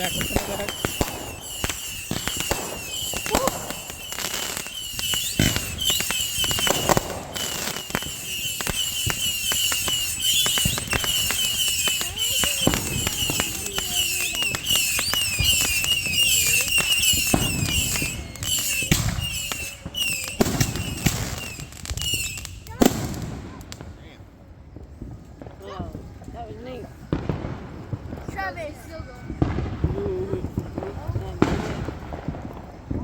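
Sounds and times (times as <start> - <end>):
high chirping: 0.0 - 22.5
fireworks popping and banging: 0.0 - 24.0, 24.7 - 33.0.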